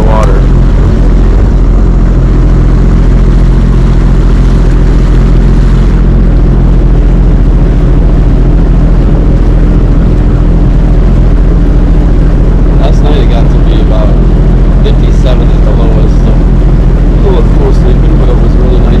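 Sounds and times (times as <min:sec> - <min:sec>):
jet ski engine running: 0:00.0 - 0:19.0.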